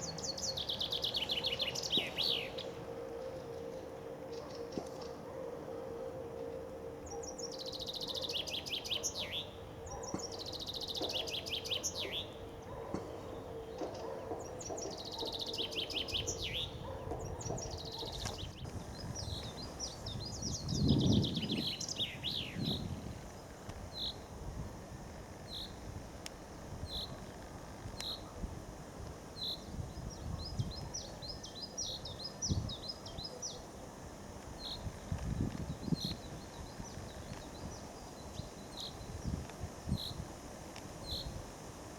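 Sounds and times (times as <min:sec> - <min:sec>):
bird call notes: 0:00.0 - 0:24.2
chaffinches singing: 0:00.0 - 0:41.6.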